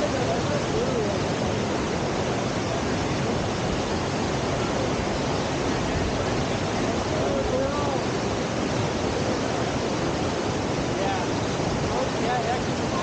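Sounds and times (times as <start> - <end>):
white water rushing: 0.0 - 13.0.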